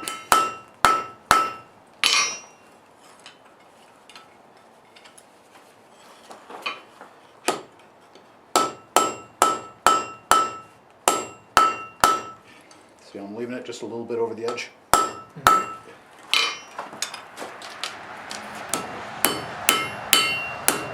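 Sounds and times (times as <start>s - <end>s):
hammer striking steel on anvil: 0.0s - 2.6s, 8.5s - 12.4s, 14.5s - 17.2s, 18.7s - 20.9s.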